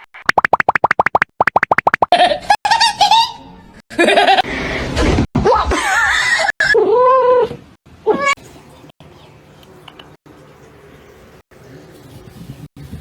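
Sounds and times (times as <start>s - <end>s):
person laughing: 2.1s - 4.5s.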